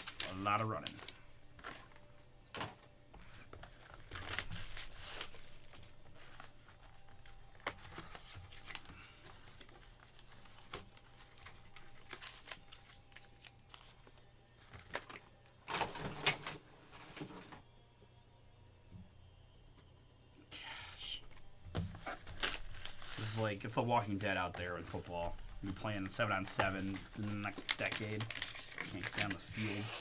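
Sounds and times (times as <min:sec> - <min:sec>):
wrappers crinkling and tearing: 0:00.0 - 0:15.3, 0:21.3 - 0:30.0
packaging rustling: 0:00.0 - 0:16.2, 0:21.3 - 0:30.0.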